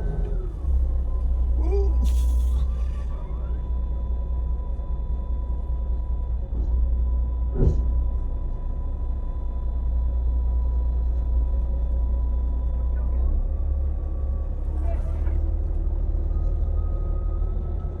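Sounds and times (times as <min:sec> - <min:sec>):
boat engine rumbling: 0:00.0 - 0:05.4.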